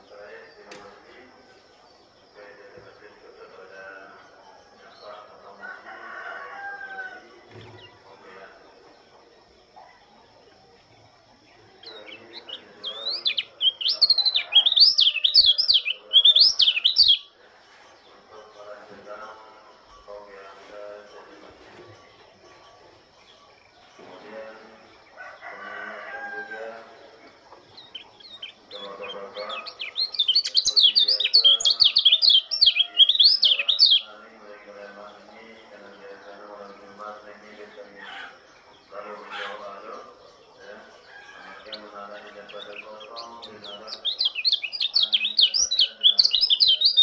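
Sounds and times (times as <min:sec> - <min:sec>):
bird twittering song: 0:00.0 - 0:20.5, 0:21.2 - 0:47.0
faint lower bird calls: 0:09.8 - 0:18.2.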